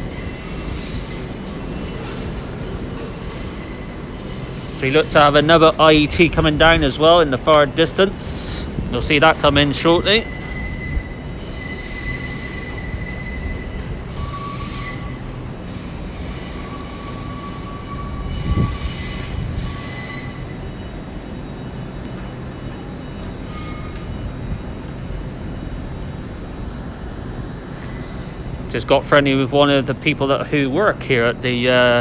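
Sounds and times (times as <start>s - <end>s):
train wheels squealing: 0.0s - 6.3s, 8.2s - 24.7s, 27.5s - 28.6s
train low rumble: 0.0s - 32.0s.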